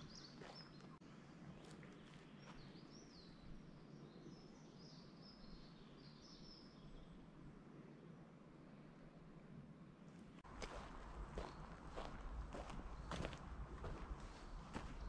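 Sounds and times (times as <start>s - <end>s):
faint songbird chirping: 0.0s - 9.1s, 10.5s - 15.0s
footsteps on dirt path: 0.2s - 1.0s, 10.4s - 15.0s.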